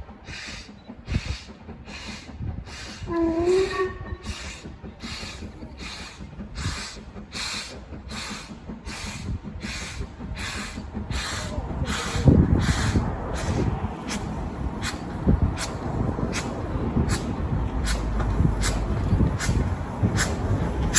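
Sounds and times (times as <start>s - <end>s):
steam locomotive chuffing: 0.0s - 20.9s
low rumble: 9.2s - 20.9s.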